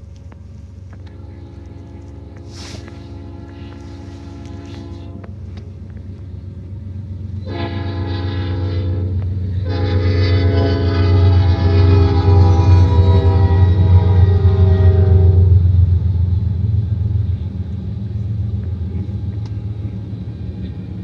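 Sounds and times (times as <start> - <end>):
train rumble: 0.0 - 21.0
locomotive horn blasts: 0.9 - 5.4, 7.4 - 15.9.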